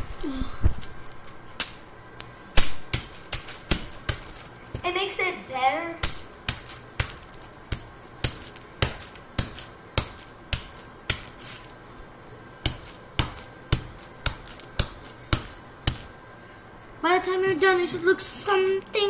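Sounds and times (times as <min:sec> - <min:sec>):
packet being pounded: 0:12.6 - 0:16.1.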